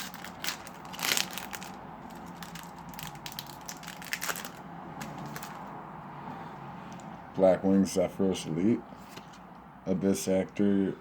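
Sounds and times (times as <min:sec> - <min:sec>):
wrapper tearing and crinkling: 0:00.0 - 0:05.7.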